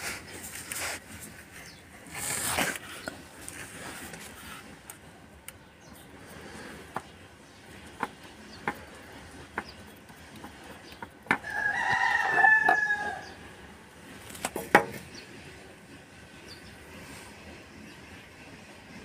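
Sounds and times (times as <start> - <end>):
drawn-out bird call: 5.6 - 14.2
sharp clicks and knocks: 7.7 - 11.5, 14.3 - 15.1.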